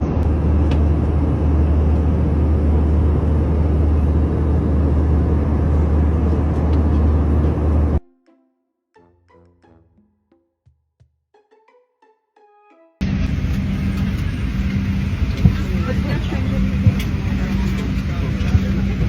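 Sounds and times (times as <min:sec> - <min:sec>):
airplane rumble: 0:00.0 - 0:08.0, 0:13.0 - 0:19.0.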